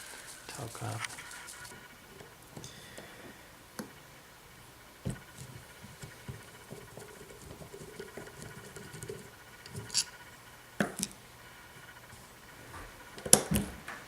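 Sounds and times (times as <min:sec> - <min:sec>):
tool being handled: 0:05.1 - 0:10.2
metal parts clicking and tapping: 0:08.0 - 0:10.2.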